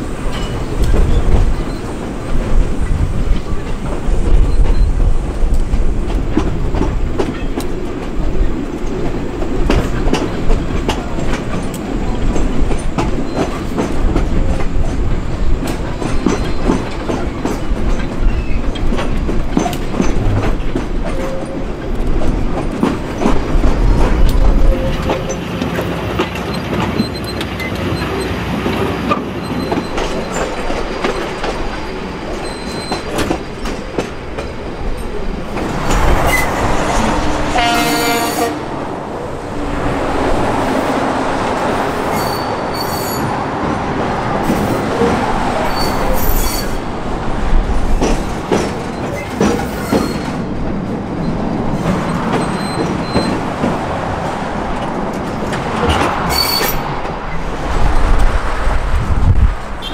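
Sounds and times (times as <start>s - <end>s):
train wheels rumbling on rail: 0.0s - 59.9s
wheels squealing: 32.3s - 33.6s, 35.8s - 38.4s, 41.9s - 43.4s, 45.6s - 46.9s, 48.9s - 50.5s, 51.2s - 53.5s, 55.8s - 57.4s
train horn: 37.2s - 38.8s.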